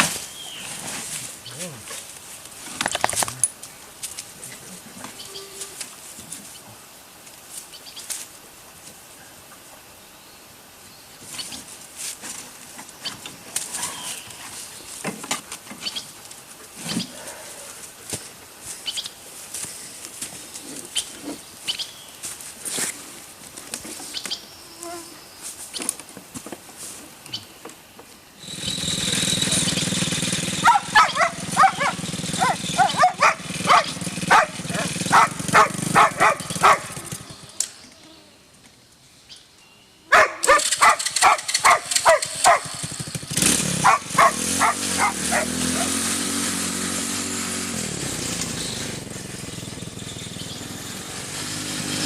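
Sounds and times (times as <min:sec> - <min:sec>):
small engine running: 0:28.4 - 0:37.6, 0:40.5 - 0:52.0
steady motor noise: 0:28.4 - 0:37.6, 0:40.5 - 0:52.0
dog barking: 0:30.6 - 0:36.9, 0:40.1 - 0:42.8, 0:43.8 - 0:45.9.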